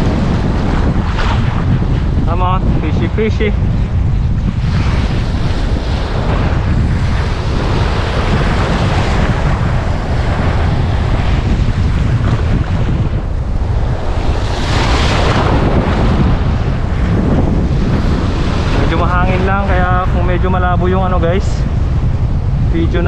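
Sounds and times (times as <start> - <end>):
strong wind buffeting microphone: 0.0 - 23.0
surf washing on shore: 0.0 - 23.0.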